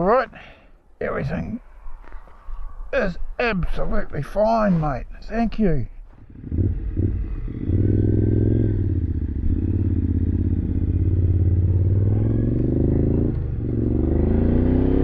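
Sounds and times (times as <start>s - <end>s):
motorcycle engine running: 6.2s - 15.0s.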